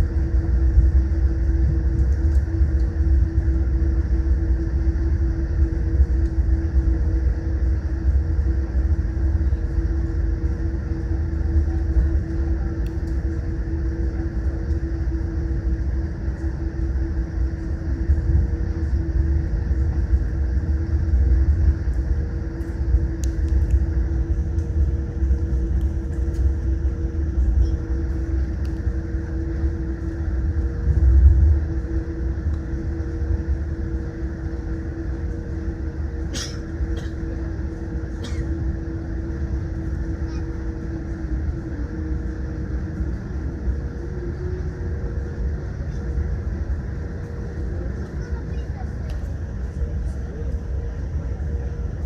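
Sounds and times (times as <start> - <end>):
airplane cabin engine rumble: 0.0 - 52.0.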